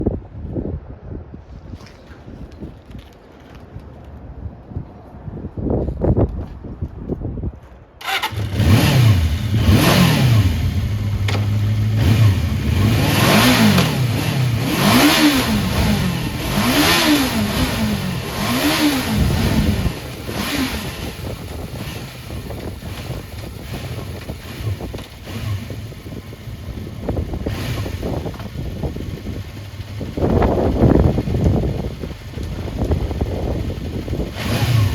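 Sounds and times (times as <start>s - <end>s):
motorcycle engine revving and idling: 8.0s - 34.9s.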